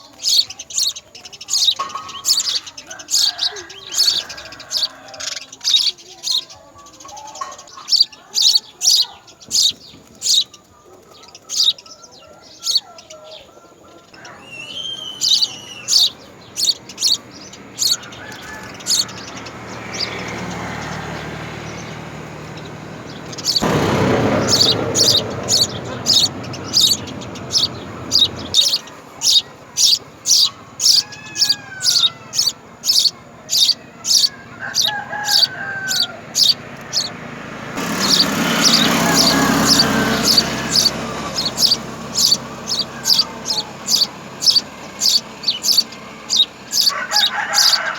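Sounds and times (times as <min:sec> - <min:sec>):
sparrows chirping: 0:00.0 - 0:47.9
rushing noise: 0:18.8 - 0:29.4.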